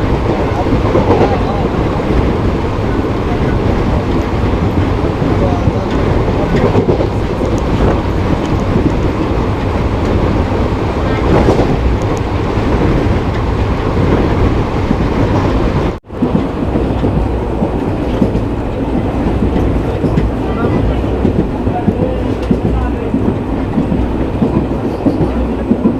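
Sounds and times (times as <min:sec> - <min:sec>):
train wheels rumbling: 0:00.0 - 0:25.9
faint rail clicks: 0:02.7 - 0:10.4, 0:11.0 - 0:12.3.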